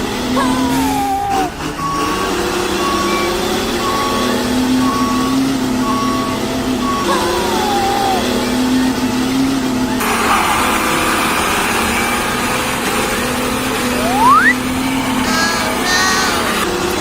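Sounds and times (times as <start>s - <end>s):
falling whistle-like tone: 13.9s - 14.6s
high electronic beeps: 14.0s - 14.6s.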